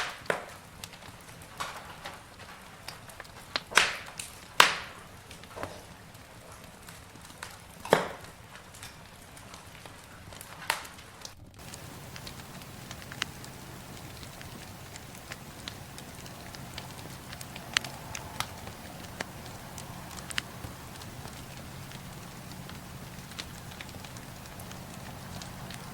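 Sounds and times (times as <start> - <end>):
campfire crackling: 0.6 - 25.9
sharp pops and snaps: 10.7 - 25.9
low steady rumble: 11.6 - 25.9.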